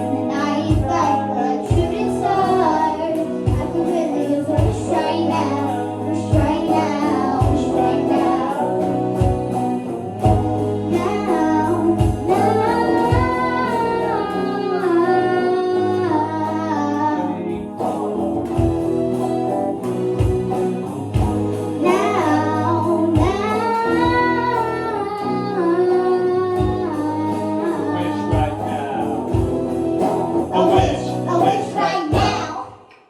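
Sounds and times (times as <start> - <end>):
steady drum beat: 0.0 - 14.6, 17.6 - 24.4, 27.7 - 32.7
children singing: 0.0 - 17.6, 21.8 - 29.3, 30.4 - 32.9
bass: 0.0 - 32.8
electric guitar: 0.0 - 33.0.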